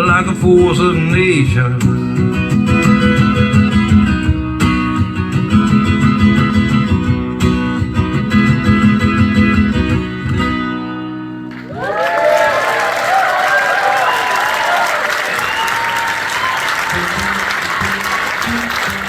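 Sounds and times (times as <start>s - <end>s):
acoustic guitar strumming: 0.0s - 11.8s, 16.8s - 19.0s
audience applauding and whooping: 11.5s - 19.0s.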